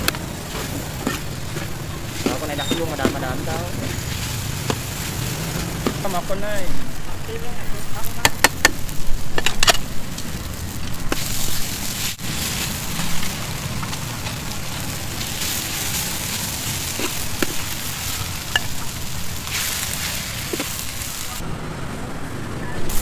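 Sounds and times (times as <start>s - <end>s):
noodles sizzling in a wok: 0.0s - 21.4s.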